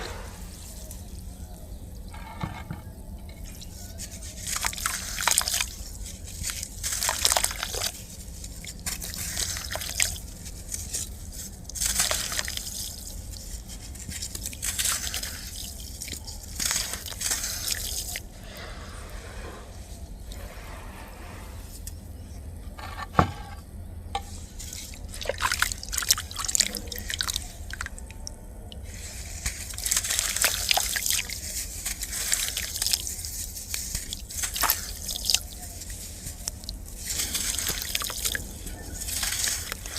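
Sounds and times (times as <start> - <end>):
sand crumbling into water: 29.1 - 39.9.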